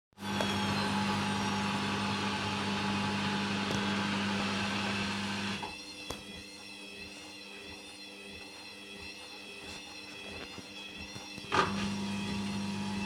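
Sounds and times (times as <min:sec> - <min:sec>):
washing machine spinning: 0:00.2 - 0:05.8, 0:10.2 - 0:13.0.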